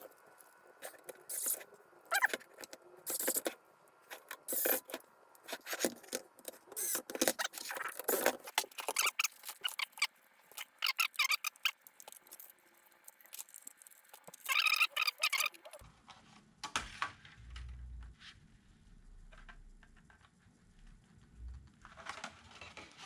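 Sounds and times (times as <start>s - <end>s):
plastic parts clicking and scraping: 0.0s - 15.8s.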